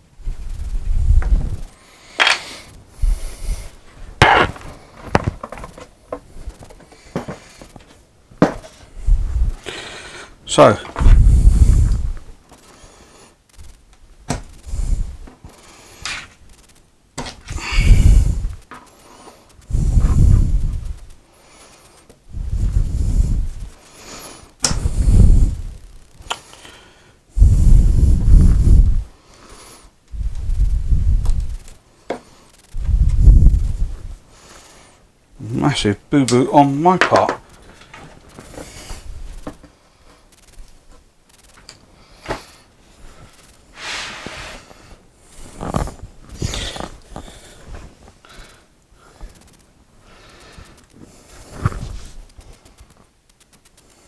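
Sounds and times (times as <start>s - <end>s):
wooden panels scraping: 4.1s - 8.8s.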